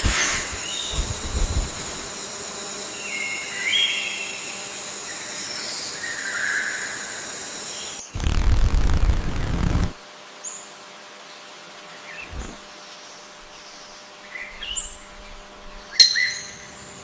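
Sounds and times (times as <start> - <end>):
loud rushing noise: 0.0 - 2.2
insect drone: 0.0 - 11.0, 11.9 - 17.0
bird chirps: 15.9 - 16.8.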